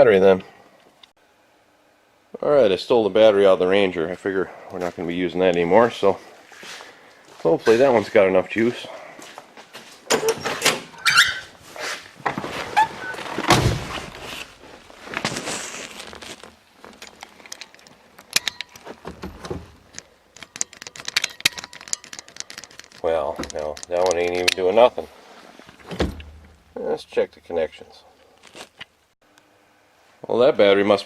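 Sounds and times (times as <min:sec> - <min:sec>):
heavy thud: 0:13.4 - 0:14.2
clunks and clicks of hands working: 0:17.0 - 0:24.6.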